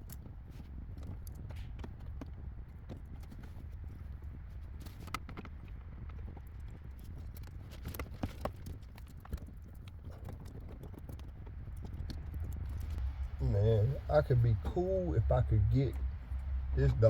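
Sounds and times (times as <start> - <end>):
light clicks of handling wires: 0.0 - 13.4
low steady hum: 12.3 - 17.0.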